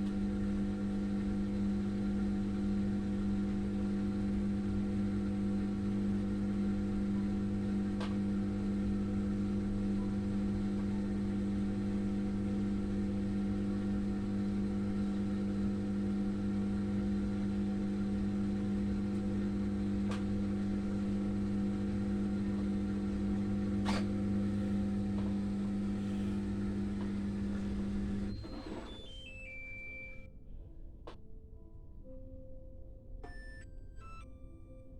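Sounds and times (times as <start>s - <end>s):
washing machine humming: 0.0s - 30.2s
falling electronic beeps: 28.3s - 30.3s.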